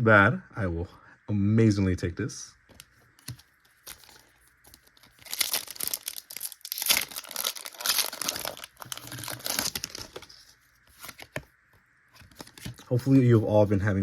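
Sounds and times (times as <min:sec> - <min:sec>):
foil wrapper crinkling and tearing: 0:03.2 - 0:11.3.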